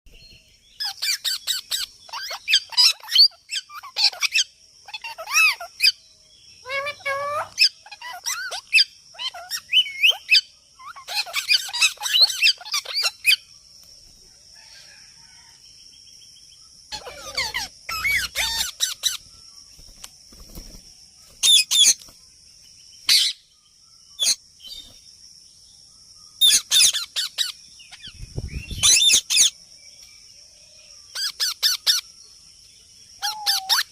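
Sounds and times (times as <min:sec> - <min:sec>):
parrot screeching and chirping: 0:00.8 - 0:06.0, 0:06.6 - 0:13.4, 0:16.9 - 0:19.2, 0:21.4 - 0:22.0, 0:23.1 - 0:23.4, 0:26.4 - 0:28.1, 0:28.8 - 0:29.6, 0:31.1 - 0:32.0, 0:33.2 - 0:33.9.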